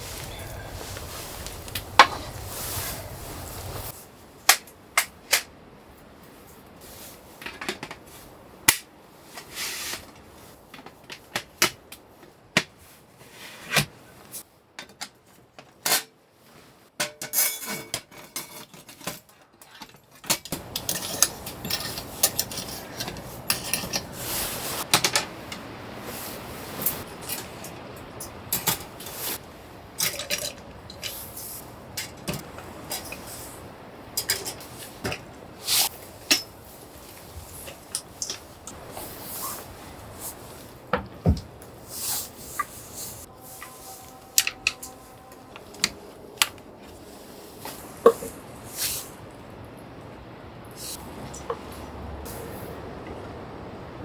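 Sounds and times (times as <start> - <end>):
objects clicking and knocking: 17.0 - 24.2, 30.0 - 33.3
objects clattering: 17.0 - 25.8, 26.7 - 49.3.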